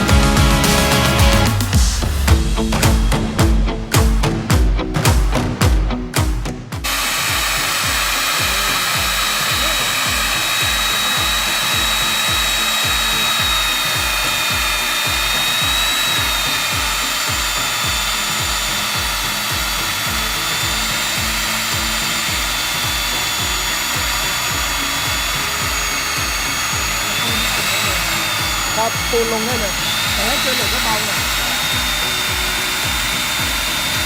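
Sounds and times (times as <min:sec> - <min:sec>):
core drill cutting concrete: 0:06.8 - 0:34.0.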